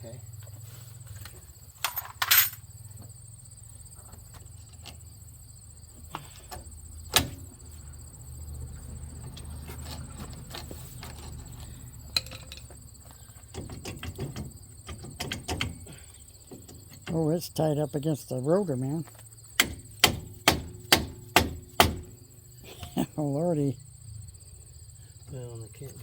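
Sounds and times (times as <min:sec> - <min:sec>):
crickets chirring: 0:00.0 - 0:26.0
metal clatter: 0:01.8 - 0:02.6, 0:12.1 - 0:12.8
metal tools clicking and rattling: 0:01.8 - 0:02.6, 0:12.1 - 0:12.7.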